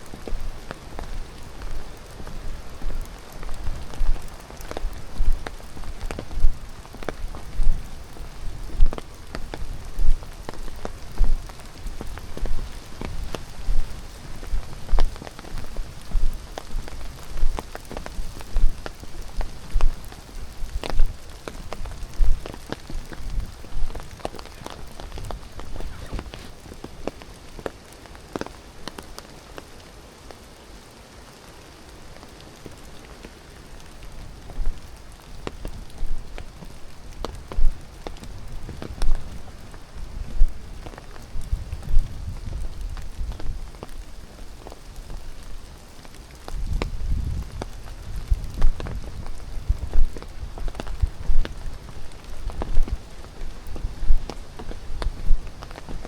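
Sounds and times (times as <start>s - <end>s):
footsteps crunching on trail: 0.0s - 28.5s, 46.6s - 56.0s.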